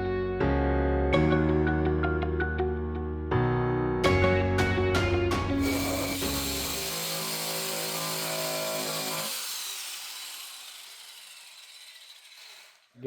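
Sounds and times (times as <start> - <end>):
power sander grinding paint: 5.6 - 13.0.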